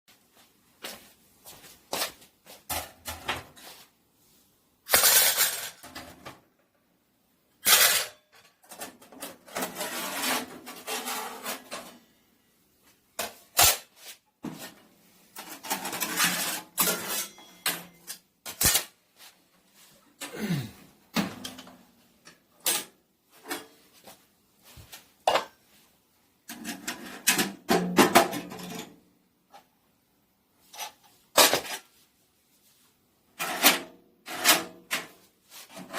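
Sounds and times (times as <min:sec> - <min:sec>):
metal clanks and scraping: 0:07.6 - 0:12.1, 0:15.4 - 0:18.9.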